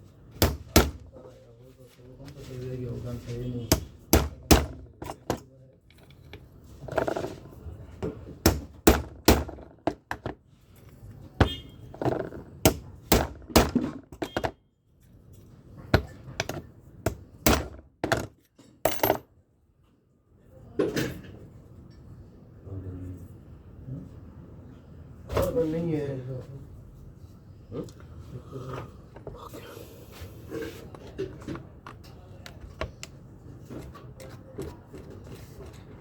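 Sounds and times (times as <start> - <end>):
metal tools knocking and clinking: 18.0 - 19.3.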